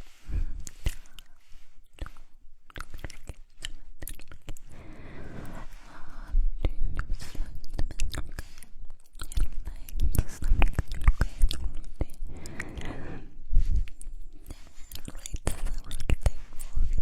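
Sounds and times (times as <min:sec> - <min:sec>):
breathing: 0:00.0 - 0:02.4, 0:04.6 - 0:06.6, 0:08.3 - 0:08.8, 0:12.2 - 0:15.7
wet mouth sounds: 0:00.6 - 0:05.6, 0:06.6 - 0:17.0.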